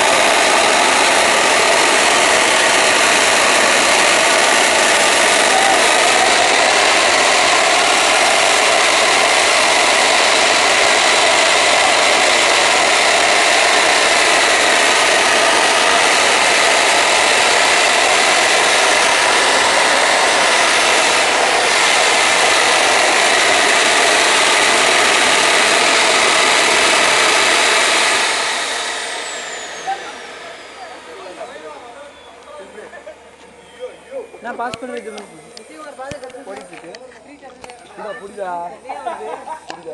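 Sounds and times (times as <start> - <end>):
jet engine rushing noise: 0.0 - 36.9
faint whining tones: 29.4 - 38.4.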